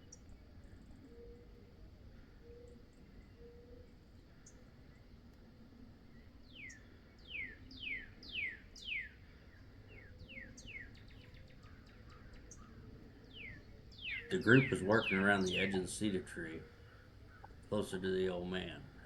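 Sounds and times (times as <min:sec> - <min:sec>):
songbird whistling downslurred notes: 0:06.5 - 0:09.2, 0:13.3 - 0:15.9.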